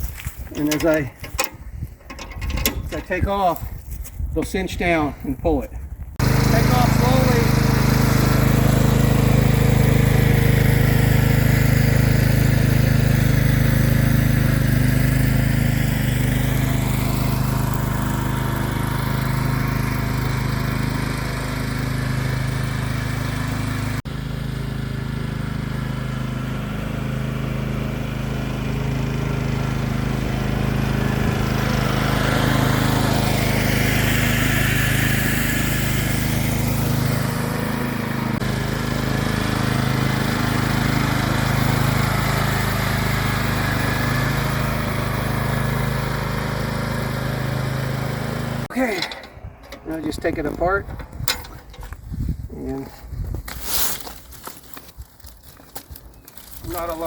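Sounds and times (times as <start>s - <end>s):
lawn mower engine running: 0.0s - 3.6s, 6.2s - 57.0s.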